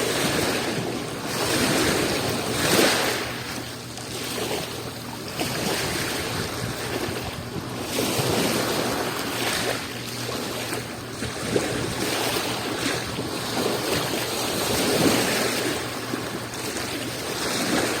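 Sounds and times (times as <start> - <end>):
small sea waves breaking: 0.0 - 18.0
wind noise on microphone: 5.4 - 9.1, 11.2 - 15.6.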